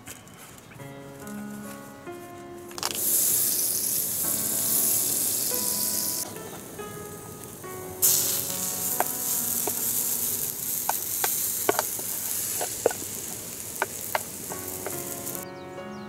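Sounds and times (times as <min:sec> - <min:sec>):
batter sizzling in a hot pan: 0:02.8 - 0:06.3, 0:08.0 - 0:15.4.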